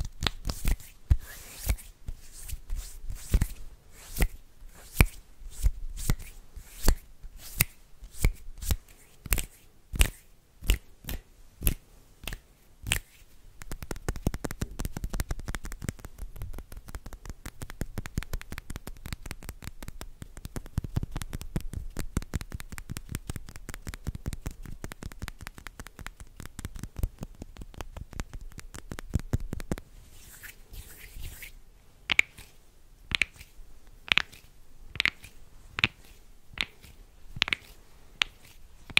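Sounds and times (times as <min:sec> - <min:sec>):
soft hand swishes: 0:00.0 - 0:14.6, 0:27.2 - 0:38.9
hands rubbing: 0:00.0 - 0:38.9
sharp hand clicks: 0:33.1 - 0:33.4, 0:34.1 - 0:34.4, 0:35.0 - 0:36.0, 0:37.4 - 0:38.9.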